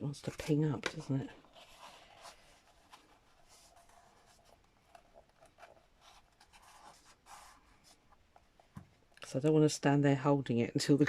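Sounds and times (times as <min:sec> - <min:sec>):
card and paper rubbing: 0:00.9 - 0:08.6.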